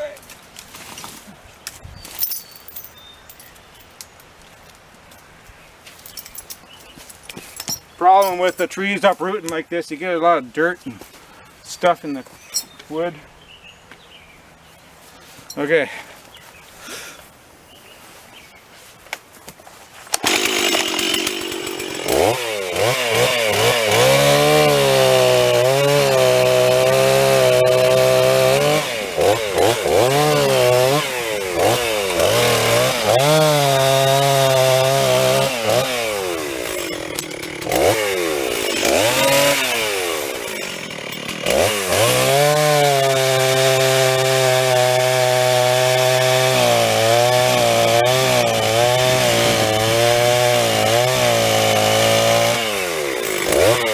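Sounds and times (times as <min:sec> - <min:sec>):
chainsaw revving and cutting: 0:20.1 - 0:53.9.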